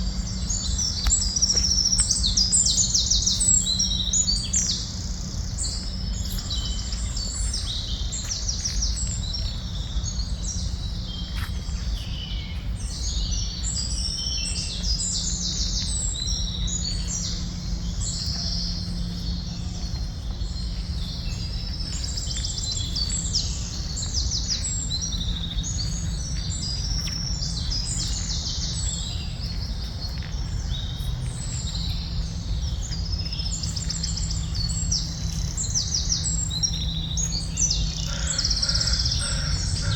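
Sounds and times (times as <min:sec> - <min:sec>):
low background rumble: 0:00.0 - 0:39.9
small birds chirping: 0:00.0 - 0:39.9.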